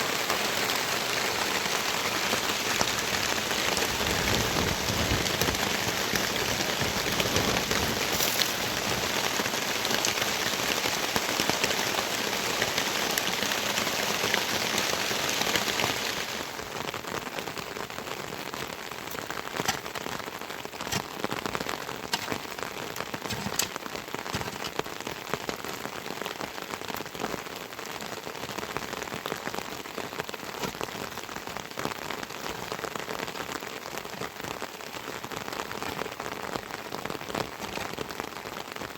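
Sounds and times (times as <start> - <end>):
raindrops striking: 0.0 - 27.8, 28.4 - 33.4
heavy rain falling: 0.0 - 38.9.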